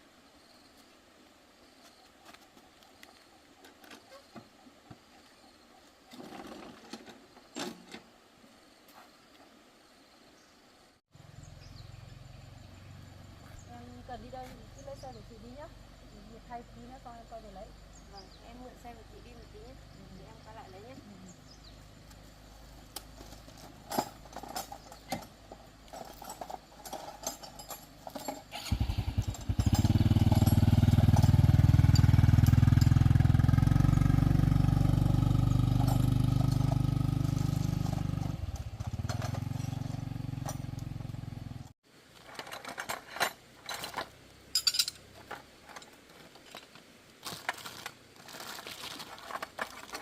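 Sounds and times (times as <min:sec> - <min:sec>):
motorbike engine running: 0:28.5 - 0:41.7.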